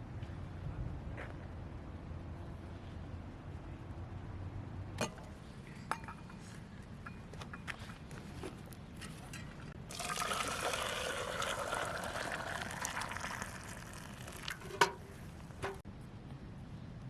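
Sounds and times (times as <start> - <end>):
liquid pouring into container: 9.8 - 15.8.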